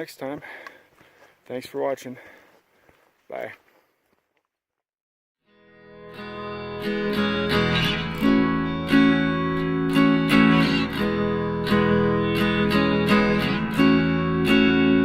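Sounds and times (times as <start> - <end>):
strummed acoustic guitar: 6.0 - 15.0.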